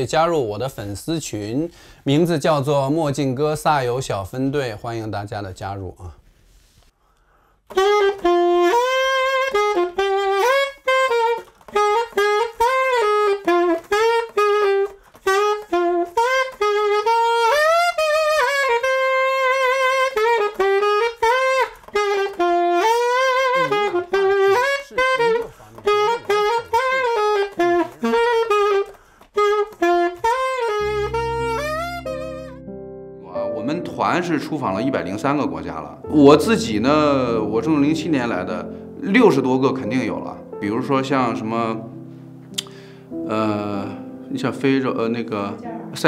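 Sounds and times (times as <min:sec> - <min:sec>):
saxophone melody: 0:07.7 - 0:44.3
low sustained instrument notes: 0:30.8 - 0:42.1.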